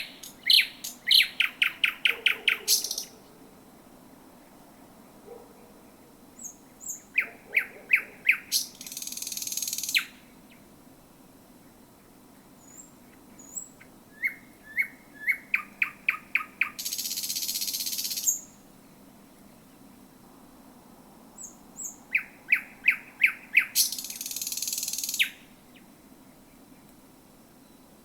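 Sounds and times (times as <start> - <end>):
thrush nightingale singing: 0.0 - 10.7, 11.6 - 20.1, 21.4 - 28.0.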